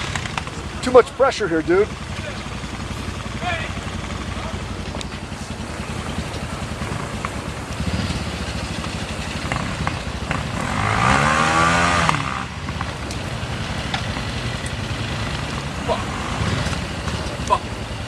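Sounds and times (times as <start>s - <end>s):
dirt bike engine rumbling: 0.0s - 18.0s
engine revving sharply: 9.5s - 12.8s, 14.3s - 17.6s.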